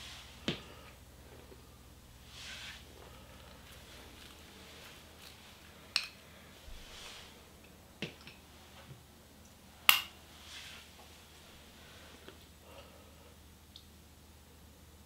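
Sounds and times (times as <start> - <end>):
soft scraping rustles: 1.2 - 5.8, 6.5 - 7.5, 10.4 - 12.4.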